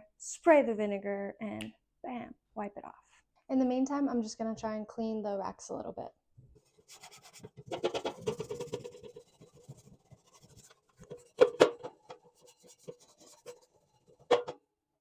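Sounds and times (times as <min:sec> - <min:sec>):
scrubbing oven rack: 0:06.7 - 0:14.4.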